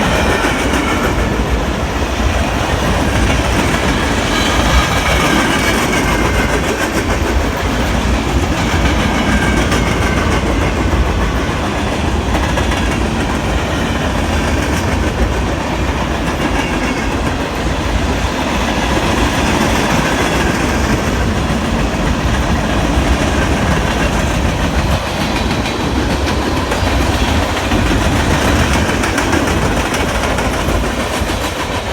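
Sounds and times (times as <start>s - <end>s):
freight train rumbling past: 0.0s - 31.9s
wheels clacking over rail joints: 0.0s - 31.9s.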